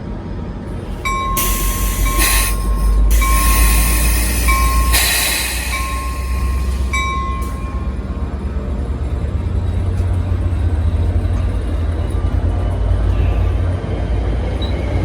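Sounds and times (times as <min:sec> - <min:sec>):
train rumbling past: 0:00.0 - 0:15.0
steel wheel squeal: 0:00.7 - 0:12.5.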